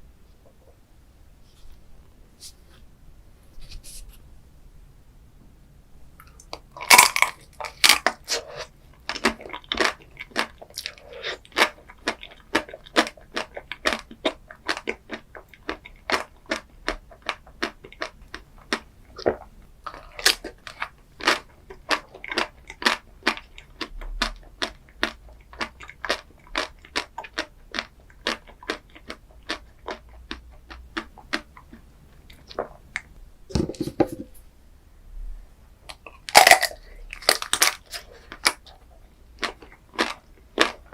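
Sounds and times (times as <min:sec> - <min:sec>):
chewing crunchy food: 0:06.2 - 0:33.1, 0:35.9 - 0:40.9.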